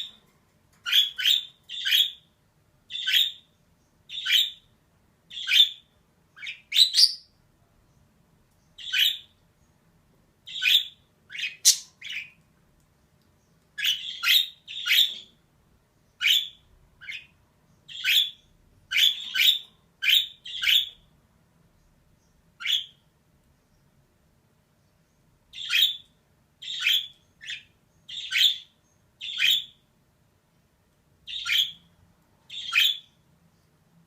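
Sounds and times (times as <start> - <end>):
budgerigar chirping: 0.9 - 2.3, 2.9 - 3.5, 4.1 - 4.7, 5.3 - 7.3, 8.8 - 9.3, 10.5 - 12.4, 13.8 - 15.3, 16.2 - 17.3, 17.9 - 21.0, 22.6 - 23.0, 25.5 - 29.8, 31.3 - 31.9, 32.5 - 33.2.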